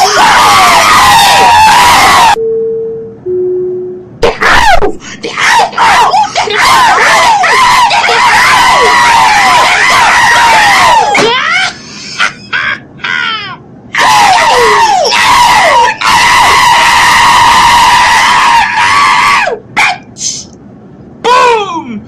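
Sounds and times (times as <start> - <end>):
person screaming high-pitched: 0.0 - 2.4, 4.2 - 11.7.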